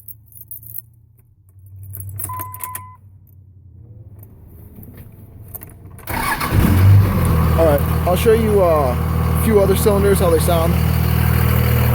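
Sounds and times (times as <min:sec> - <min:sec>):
keys jangling and clicking: 0:00.0 - 0:03.4.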